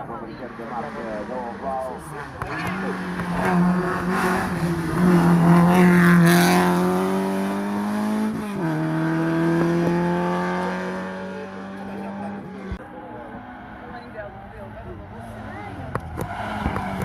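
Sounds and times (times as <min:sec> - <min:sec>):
race car engine pulling hard: 0:00.0 - 0:17.0.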